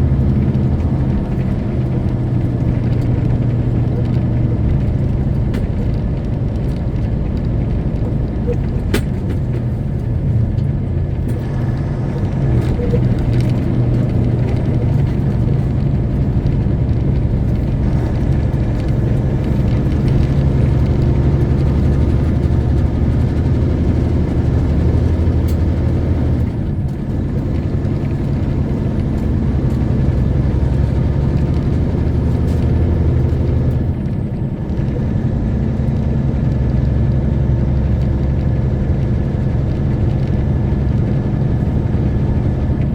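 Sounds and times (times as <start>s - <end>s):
diesel truck engine droning: 0.0s - 42.9s.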